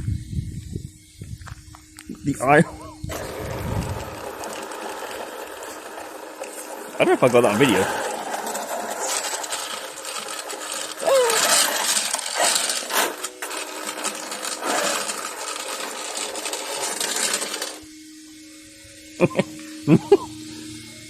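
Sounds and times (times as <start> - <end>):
electric motor whine: 0.0 - 21.0
rc truck rattling: 3.1 - 17.9.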